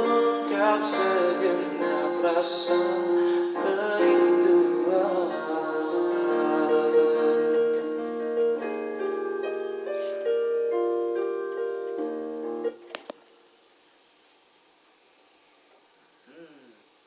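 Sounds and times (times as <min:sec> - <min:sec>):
keyboard piano chords: 0:00.0 - 0:13.0.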